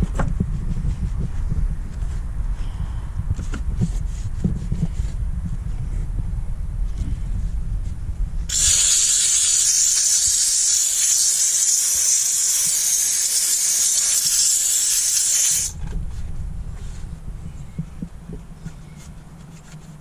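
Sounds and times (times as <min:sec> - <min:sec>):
steam cleaner hissing: 0:08.5 - 0:15.7.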